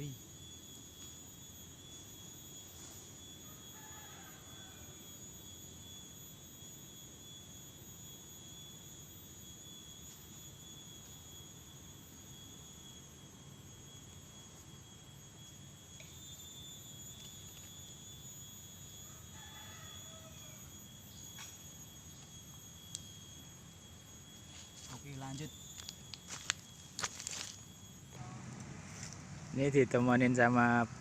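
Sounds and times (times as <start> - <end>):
high-pitched whine: 0.0 - 31.0.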